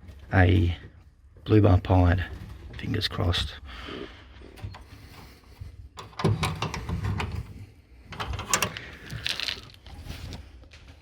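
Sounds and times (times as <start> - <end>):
knocking scraping and rustling: 4.5 - 11.0.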